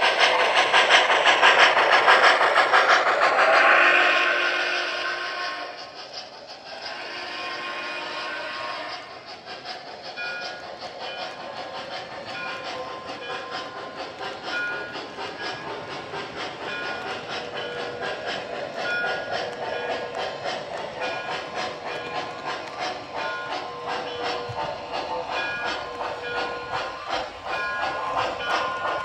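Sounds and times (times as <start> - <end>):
model train wheel clicks: 9.0 - 29.0.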